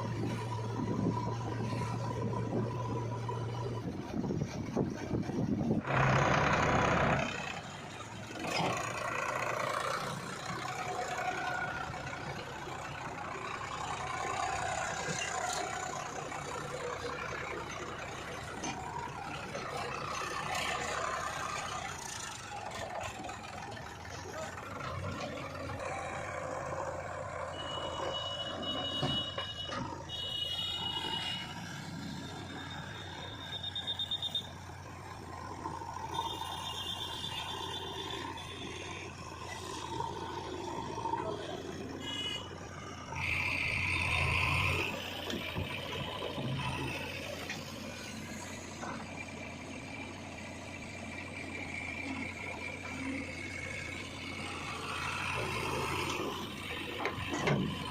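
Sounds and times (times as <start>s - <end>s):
diesel engines running: 0.0s - 57.9s
reversing alarm beeping: 27.4s - 34.7s, 39.6s - 47.5s.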